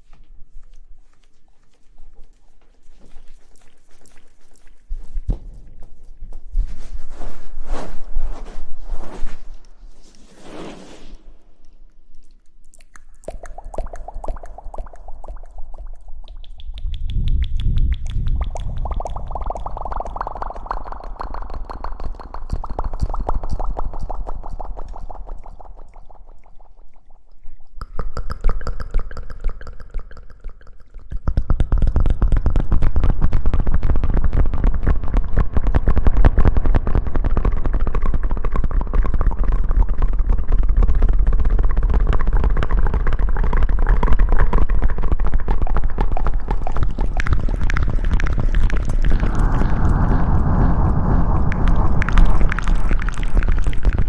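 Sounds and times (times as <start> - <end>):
rustling against microphone: 0.0 - 12.5
low rumble: 6.1 - 12.5, 46.3 - 54.0.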